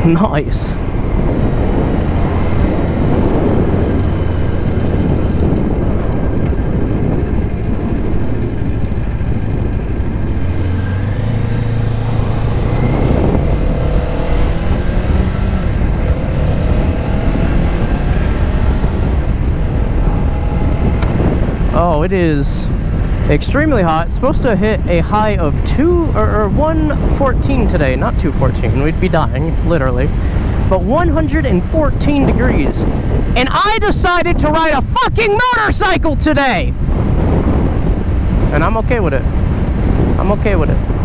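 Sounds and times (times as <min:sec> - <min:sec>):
motorcycle engine running: 0:00.0 - 0:33.4.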